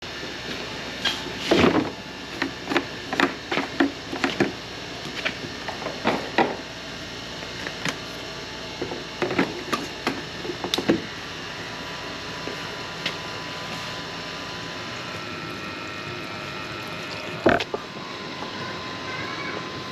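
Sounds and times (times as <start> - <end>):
steady background noise: 0.1 - 19.9.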